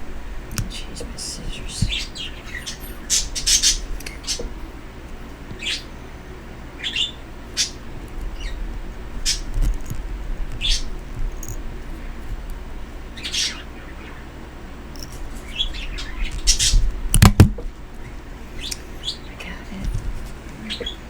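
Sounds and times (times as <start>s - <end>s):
pet bird chirping: 0.4s - 4.6s, 5.5s - 6.0s, 6.7s - 20.0s, 20.6s - 21.0s
sharp clicks: 9.2s - 11.9s, 14.9s - 17.7s.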